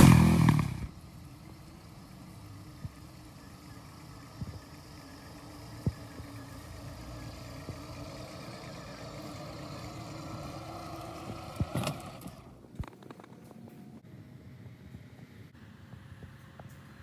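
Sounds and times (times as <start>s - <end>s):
distant engine running: 0.0s - 12.7s.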